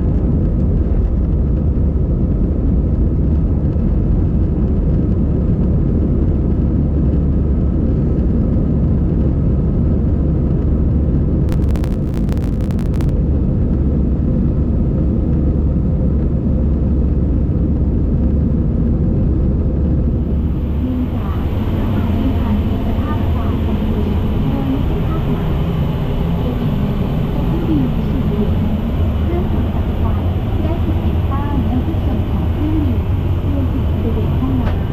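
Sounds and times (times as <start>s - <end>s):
airplane cabin engine rumble: 11.5s - 13.1s, 17.7s - 34.9s
rapid clicks: 11.5s - 13.1s.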